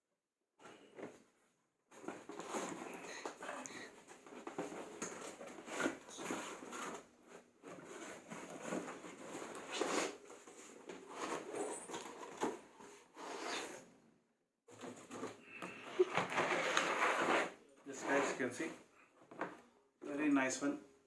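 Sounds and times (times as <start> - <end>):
packaging rustling and crinkling: 1.9 - 13.8, 14.8 - 18.7.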